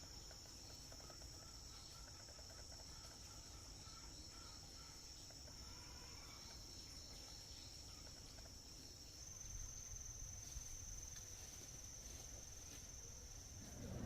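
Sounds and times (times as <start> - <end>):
insects trilling in chorus: 0.0 - 14.0.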